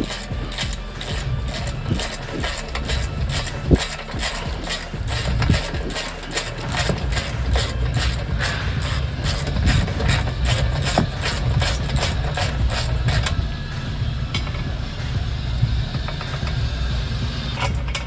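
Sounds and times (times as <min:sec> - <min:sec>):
hand ratchet clicking: 0:00.0 - 0:13.7.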